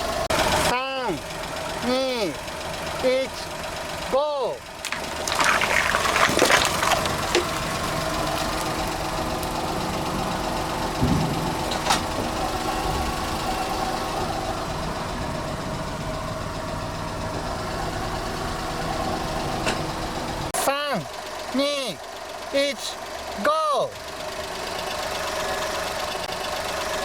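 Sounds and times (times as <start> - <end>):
car engine idling: 0.0 - 5.4, 7.1 - 27.0
tyre crushing object: 4.8 - 9.0.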